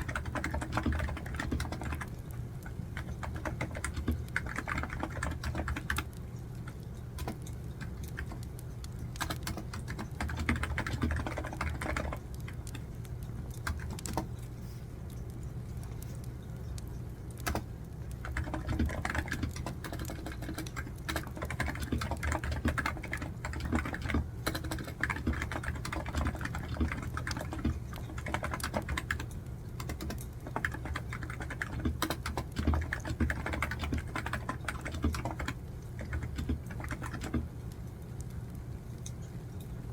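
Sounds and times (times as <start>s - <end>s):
steady low background noise: 0.0s - 39.9s
computer keyboard key clicks: 3.0s - 12.8s, 13.5s - 14.4s, 17.4s - 37.5s.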